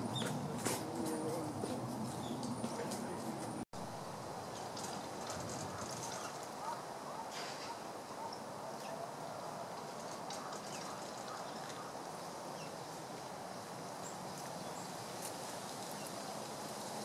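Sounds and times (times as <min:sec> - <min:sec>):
faint high bird calls: 0:04.5 - 0:09.4.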